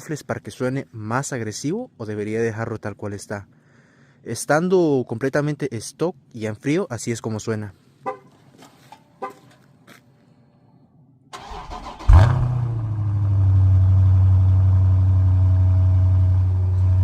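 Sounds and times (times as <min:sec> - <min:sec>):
car engine idling: 0:11.4 - 0:17.0.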